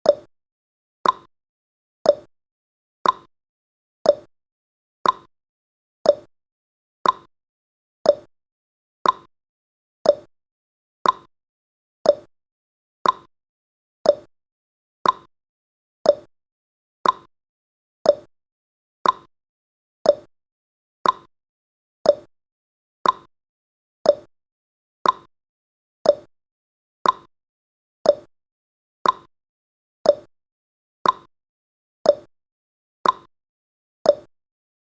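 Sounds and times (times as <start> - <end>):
clock ticking: 3.0 - 3.3, 5.0 - 5.3, 7.0 - 7.3, 8.1 - 8.3, 9.0 - 9.3, 10.1 - 10.3, 11.0 - 11.3, 12.1 - 12.3, 13.0 - 13.3, 14.1 - 14.3, 15.0 - 15.3, 16.1 - 16.3, 17.0 - 17.3, 18.1 - 18.3, 19.0 - 19.3, 20.1 - 20.3, 21.0 - 21.3, 22.1 - 22.3, 23.0 - 23.3, 24.1 - 24.3, 25.0 - 25.3, 26.0 - 26.3, 27.0 - 27.3, 28.1 - 28.3, 29.0 - 29.3, 30.1 - 30.3, 31.0 - 31.3, 32.1 - 32.3, 33.0 - 33.3, 34.1 - 34.3.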